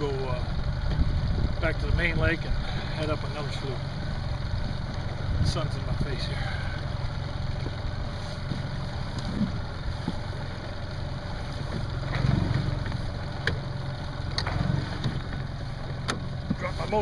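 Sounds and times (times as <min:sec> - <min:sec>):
outboard motor idling: 0:00.0 - 0:17.0.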